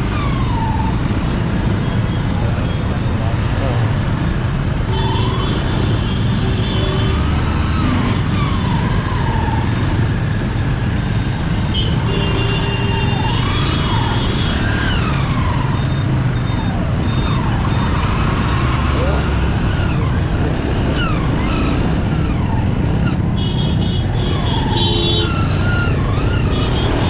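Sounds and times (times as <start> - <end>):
wailing siren tones: 4.7 - 10.5, 12.8 - 23.2, 24.3 - 27.0.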